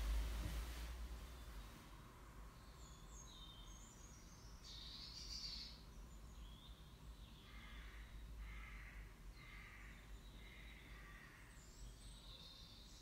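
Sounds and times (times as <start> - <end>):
faint birdsong chirps: 0.0 - 13.0.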